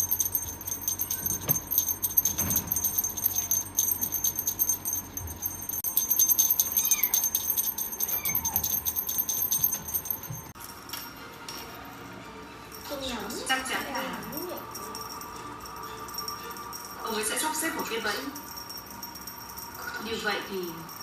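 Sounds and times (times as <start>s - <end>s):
rapid jingling: 0.0s - 10.8s.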